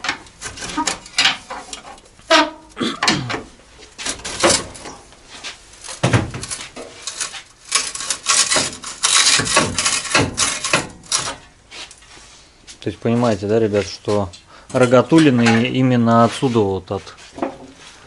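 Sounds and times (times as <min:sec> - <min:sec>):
tools scraping metal: 0:00.0 - 0:03.2, 0:04.0 - 0:12.0, 0:14.0 - 0:15.8.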